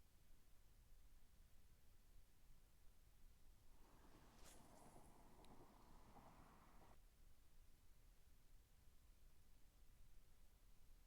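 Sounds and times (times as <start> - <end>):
faint low rumble: 3.8 - 7.0.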